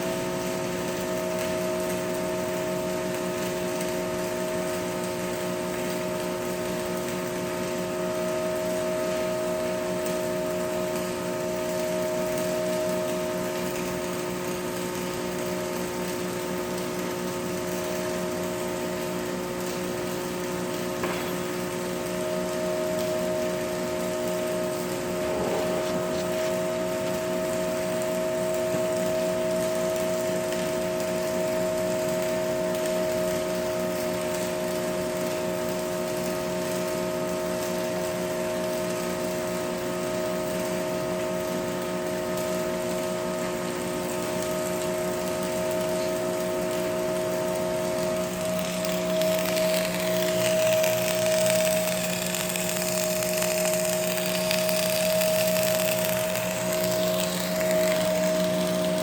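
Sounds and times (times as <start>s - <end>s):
power tool motor whine: 24.9s - 28.1s, 46.7s - 59.0s
crackling hiss: 43.8s - 59.0s.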